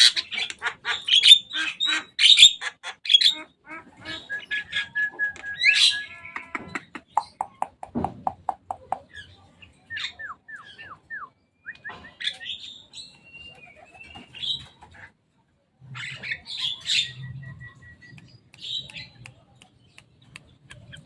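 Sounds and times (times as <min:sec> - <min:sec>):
harsh bird chattering: 0:00.0 - 0:05.0, 0:05.6 - 0:09.4, 0:16.0 - 0:21.0
mynas calling: 0:00.0 - 0:07.7.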